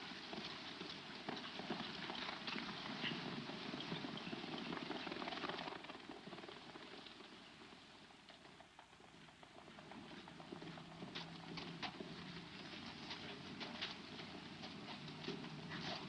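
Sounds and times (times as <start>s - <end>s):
hooves clattering on dirt: 0.0s - 16.0s.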